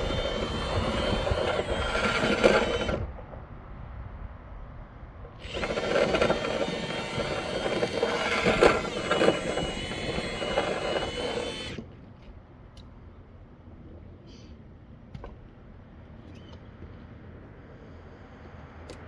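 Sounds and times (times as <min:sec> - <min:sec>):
power drill running: 0:00.0 - 0:03.1, 0:05.4 - 0:11.8.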